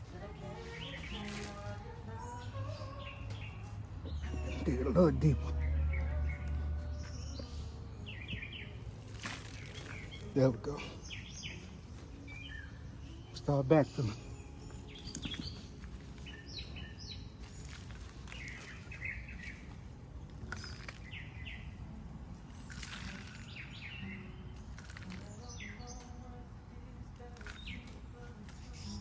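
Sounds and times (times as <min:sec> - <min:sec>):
small birds chirping: 0:00.0 - 0:29.0
shovel scraping soil: 0:00.5 - 0:01.9, 0:08.8 - 0:12.0, 0:14.7 - 0:21.3.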